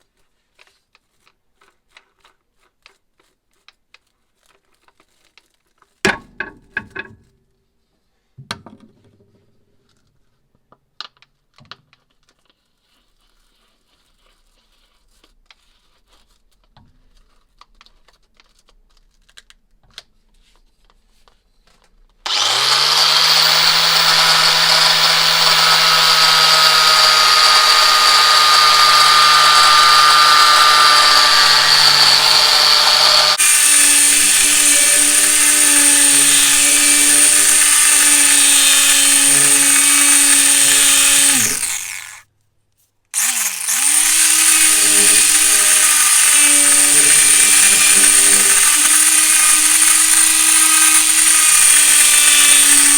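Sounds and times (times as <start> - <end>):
electric power tool motor running: 22.3 - 42.2, 43.2 - 52.9.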